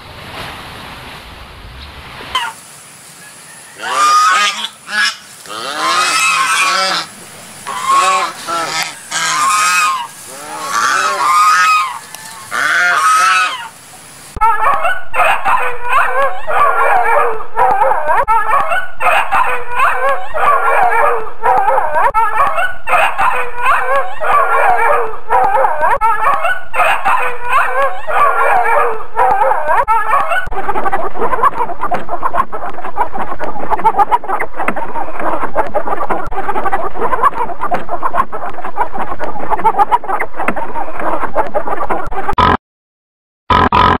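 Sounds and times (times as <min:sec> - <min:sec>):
chorus of animal calls: 0:03.2 - 0:13.8, 0:14.4 - 0:42.0
cygnets calling: 0:03.2 - 0:13.8, 0:14.4 - 0:39.0.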